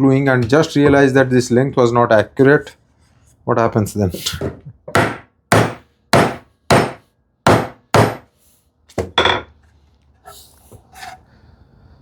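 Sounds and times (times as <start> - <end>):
hammer knocking on wood: 4.9 - 8.2.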